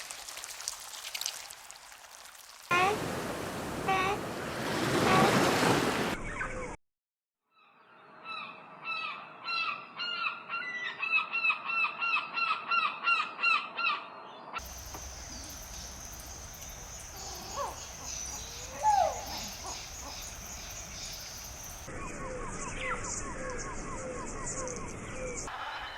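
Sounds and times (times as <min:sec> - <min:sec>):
bird honk-like calls: 0:02.7 - 0:05.6
steady hiss: 0:14.6 - 0:21.9.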